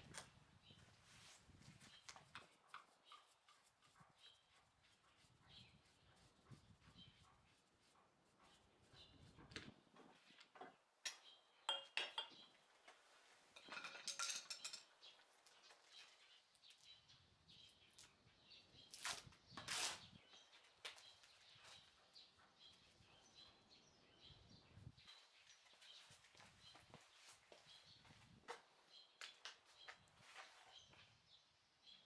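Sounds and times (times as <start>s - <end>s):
faint metal clinks and taps: 9.4s - 13.0s, 13.6s - 16.0s.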